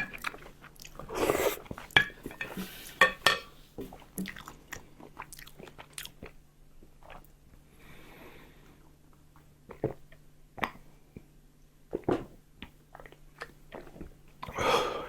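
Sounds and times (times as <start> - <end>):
person chewing: 3.9 - 6.4.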